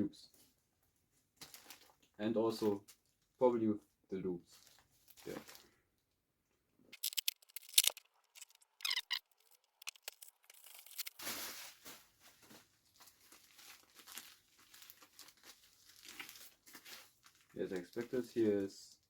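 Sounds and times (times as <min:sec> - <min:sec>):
packaging crinkling and tearing: 0:01.4 - 0:02.1, 0:04.6 - 0:05.8, 0:06.9 - 0:18.6.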